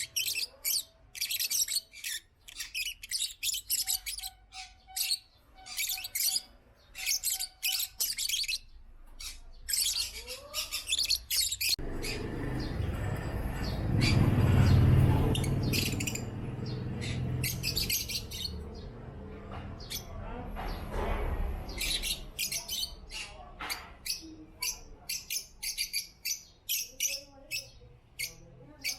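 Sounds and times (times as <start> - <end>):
lovebirds chirping: 0.0 - 28.9
broad rumbling noise: 11.8 - 21.9.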